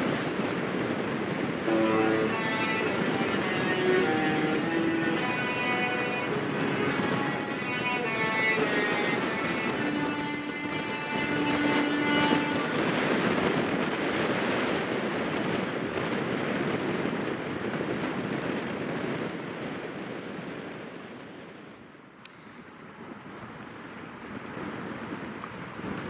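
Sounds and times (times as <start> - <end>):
wind buffeting microphone: 0.0 - 26.0
musical ship horn: 1.6 - 14.7.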